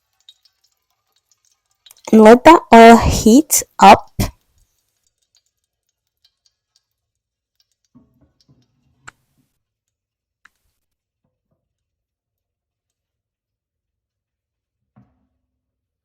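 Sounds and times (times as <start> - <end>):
faint ticks and clicks: 0.0 - 2.1, 4.3 - 11.0.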